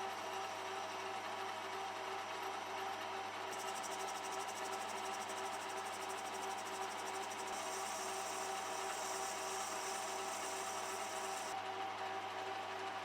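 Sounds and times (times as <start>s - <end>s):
small power tool pulsing: 7.5s - 11.5s.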